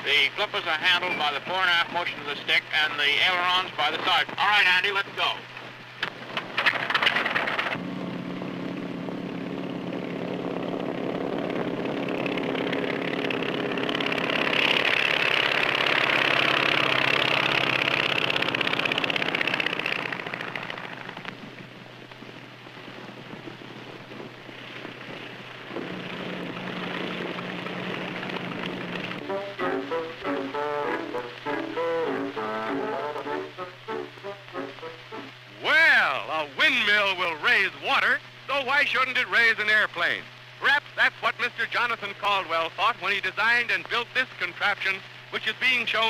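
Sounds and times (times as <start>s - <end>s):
old recording hiss and hum: 0.0s - 46.0s
propeller aircraft engine: 5.4s - 35.5s.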